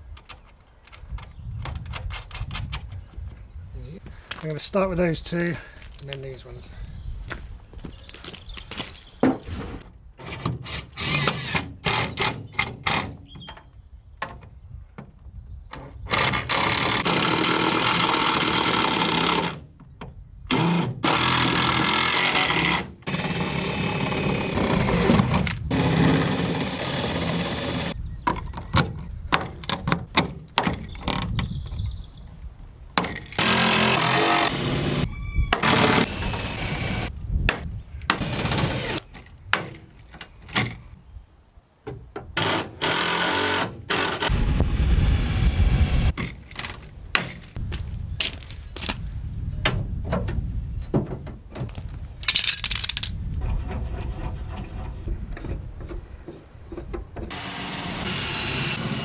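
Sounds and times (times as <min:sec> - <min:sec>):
power tool running: 0:20.5 - 0:28.0, 0:33.4 - 0:37.1, 0:38.1 - 0:39.0, 0:42.4 - 0:46.2, 0:57.3 - 0:59.0.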